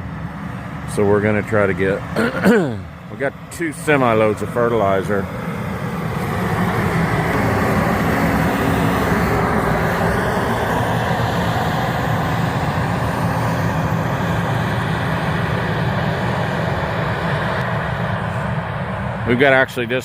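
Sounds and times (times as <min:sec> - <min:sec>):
vehicle engine humming: 0:00.0 - 0:20.0
rushing noise: 0:05.4 - 0:20.0.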